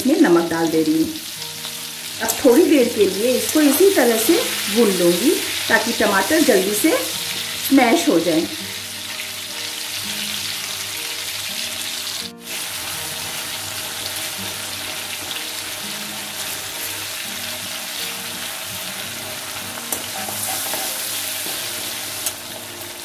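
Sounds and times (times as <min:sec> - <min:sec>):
soft background music: 0:00.0 - 0:23.0
vegetables sizzling in hot oil: 0:00.0 - 0:23.0
spatula turning food: 0:19.9 - 0:22.4.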